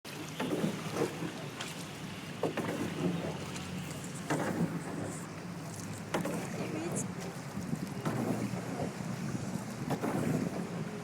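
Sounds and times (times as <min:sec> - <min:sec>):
small boat engine running: 0:00.1 - 0:11.0
wind on microphone: 0:06.2 - 0:11.0.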